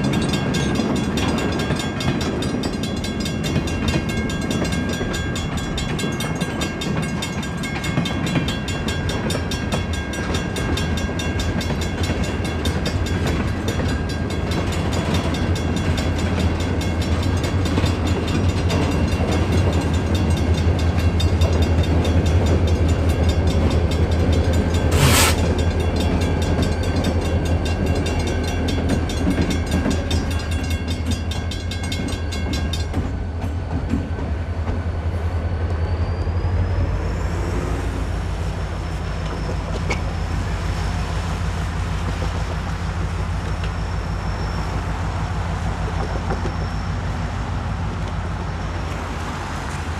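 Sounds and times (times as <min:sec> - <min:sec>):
diesel locomotive rumble: 0:00.0 - 0:49.9
wheel squeal: 0:24.8 - 0:25.7, 0:34.7 - 0:37.6, 0:38.7 - 0:40.4, 0:43.4 - 0:47.5
short sharp hiss: 0:24.9 - 0:25.4.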